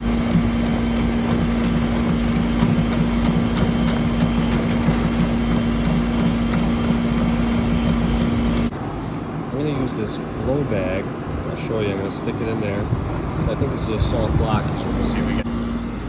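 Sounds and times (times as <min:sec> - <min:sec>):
ticks and rattles: 0:00.0 - 0:08.7
machine motor humming: 0:00.0 - 0:08.8, 0:13.8 - 0:16.0.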